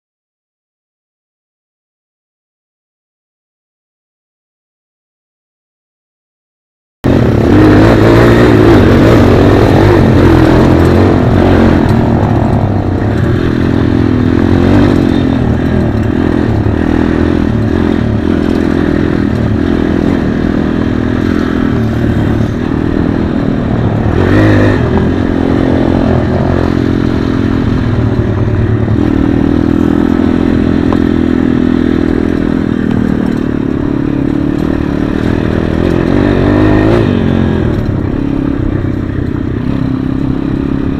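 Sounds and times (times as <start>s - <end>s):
pit bike engine revving: 7.0s - 40.9s.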